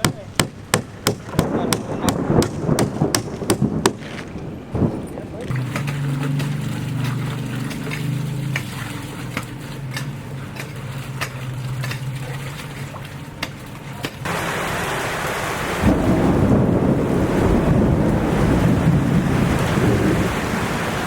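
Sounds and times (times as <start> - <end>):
sharp raindrops ticking: 7.6 - 21.0
downpour hiss: 14.2 - 21.0.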